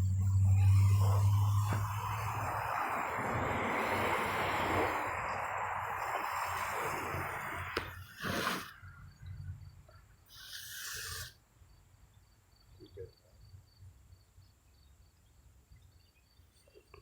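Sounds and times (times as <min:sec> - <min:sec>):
faint crickets chirping: 0:00.0 - 0:17.0
short hiss: 0:06.0 - 0:08.9, 0:10.3 - 0:11.4.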